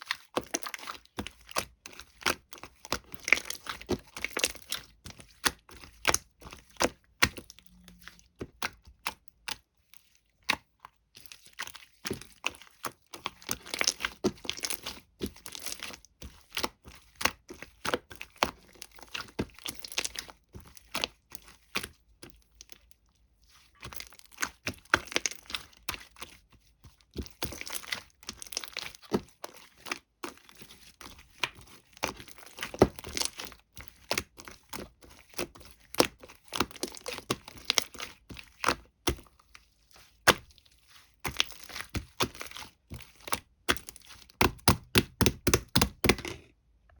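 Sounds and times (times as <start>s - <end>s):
slime crackling and popping: 31.3s - 39.3s, 41.2s - 46.2s.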